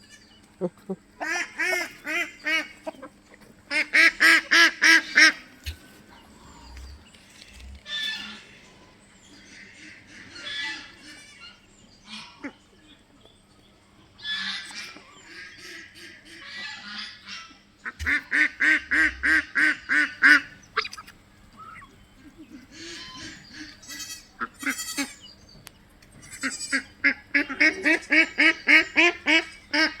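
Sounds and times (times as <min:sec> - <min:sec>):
ducks quacking: 0:00.6 - 0:07.0, 0:14.3 - 0:25.2, 0:26.2 - 0:30.0.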